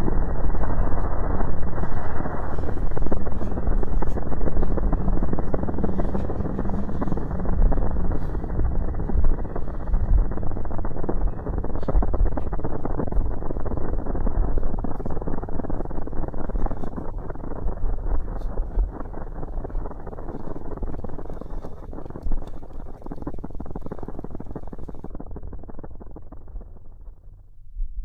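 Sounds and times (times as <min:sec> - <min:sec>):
fire crackling and popping: 0:00.0 - 0:27.4.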